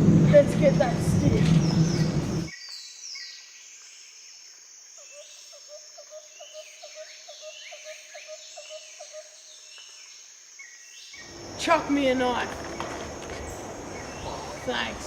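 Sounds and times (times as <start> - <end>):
birds calling: 0.0 - 3.4, 10.6 - 15.0
high insect drone: 0.0 - 15.0.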